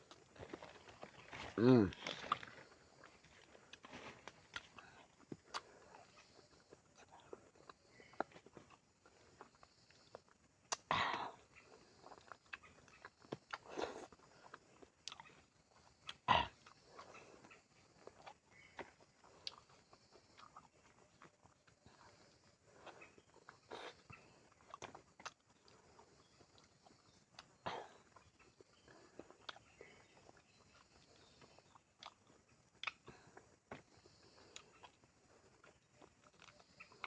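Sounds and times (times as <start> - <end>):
person chewing fruit: 0.0 - 37.0.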